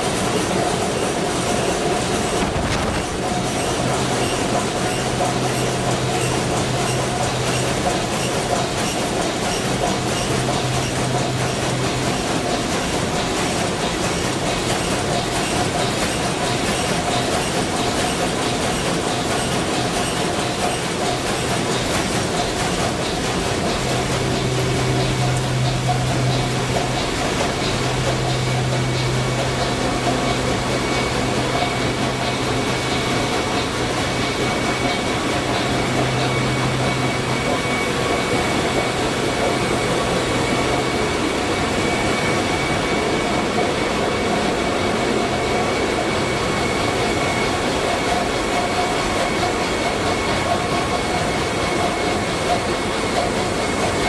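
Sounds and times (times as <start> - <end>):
ship engine room machinery din: 2.1 - 3.9.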